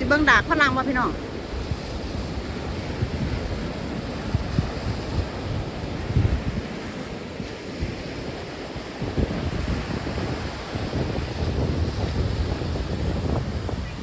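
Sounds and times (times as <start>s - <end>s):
sea waves washing: 0.0s - 14.0s
wind buffeting microphone: 0.0s - 14.0s.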